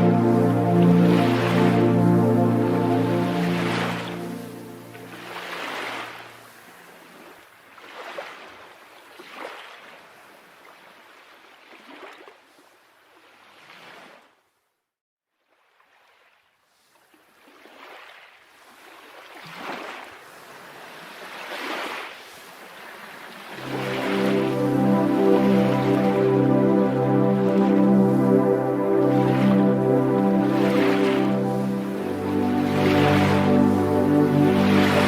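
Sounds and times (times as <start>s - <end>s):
waves washing in: 0.0s - 8.3s, 19.6s - 35.0s.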